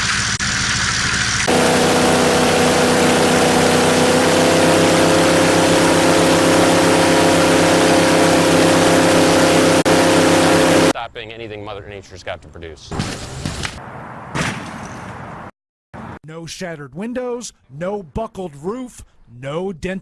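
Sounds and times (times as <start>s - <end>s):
electric blower rushing air: 1.5s - 11.0s.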